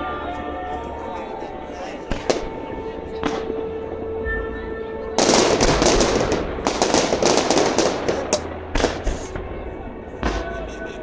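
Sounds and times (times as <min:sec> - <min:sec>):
fireworks bangs and pops: 0:02.1 - 0:04.2, 0:05.2 - 0:09.6, 0:10.2 - 0:10.8.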